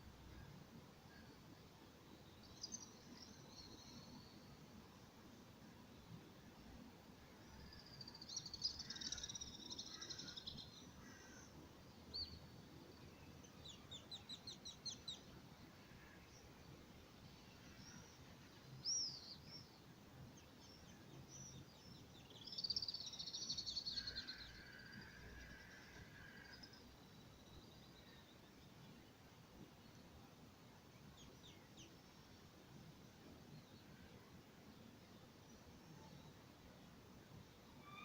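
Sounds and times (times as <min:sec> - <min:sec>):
faint background noise: 0:00.0 - 0:38.0
small songbirds singing: 0:02.2 - 0:04.6, 0:07.4 - 0:34.1.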